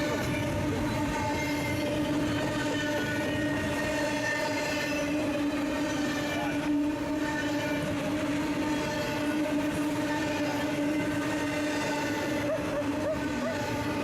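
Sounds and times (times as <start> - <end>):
freight train passing: 0.0 - 14.0.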